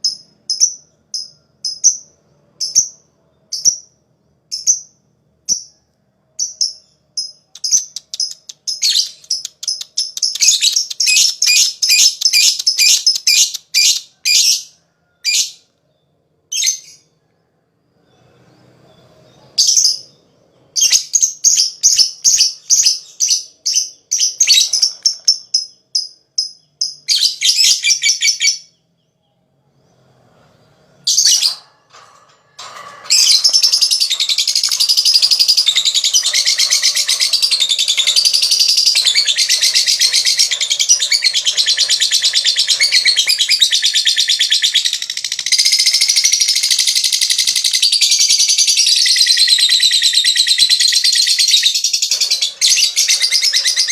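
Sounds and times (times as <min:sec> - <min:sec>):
lovebird chirping and trilling: 0:06.4 - 0:15.6, 0:20.8 - 0:28.8, 0:31.0 - 0:53.9.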